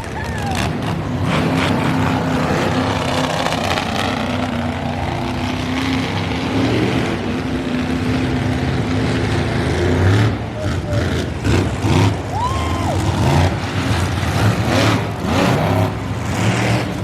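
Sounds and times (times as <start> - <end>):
monster truck engines running: 0.0 - 17.0.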